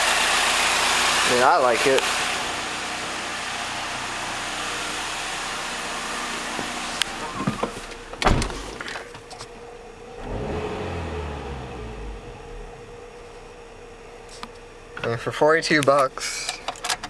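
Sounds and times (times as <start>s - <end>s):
car engine idling with airy hiss: 0.0s - 17.0s
car door clicks and thump: 6.6s - 9.5s
engine revving: 10.1s - 13.1s.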